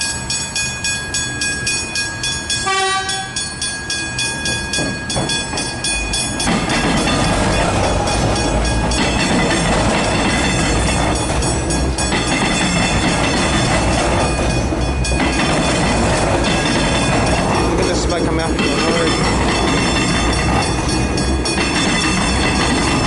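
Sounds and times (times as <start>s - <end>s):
train passing rumble: 0.0s - 23.0s
train horn blast: 2.6s - 3.3s.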